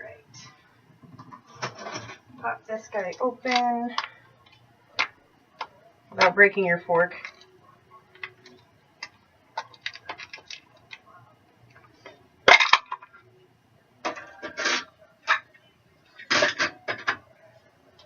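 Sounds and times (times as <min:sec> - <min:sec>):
hard plastic clicking and clattering: 0:08.1 - 0:11.0
plastic rattling: 0:08.1 - 0:11.1.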